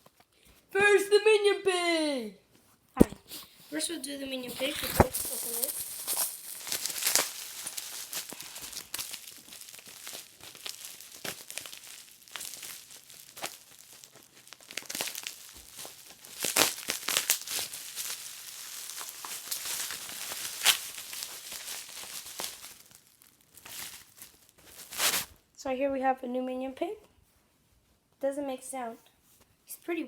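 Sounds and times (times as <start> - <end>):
packaging being torn and crumpled: 4.3 - 25.4.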